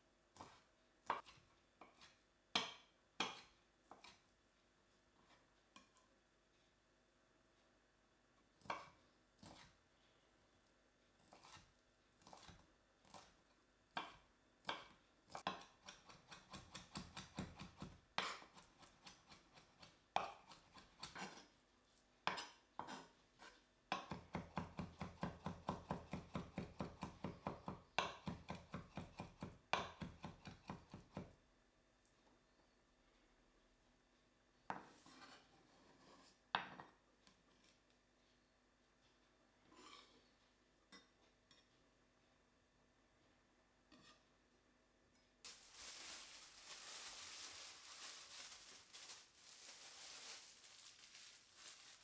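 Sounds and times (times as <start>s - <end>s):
knife chopping on cutting board: 14.0s - 21.4s, 24.0s - 31.2s.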